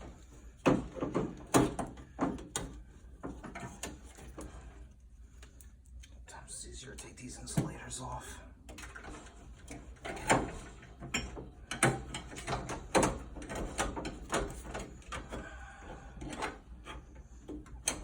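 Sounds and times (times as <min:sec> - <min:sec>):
parts knocking and scraping: 0:00.0 - 0:04.9, 0:08.7 - 0:18.0
low steady hum: 0:00.0 - 0:18.0.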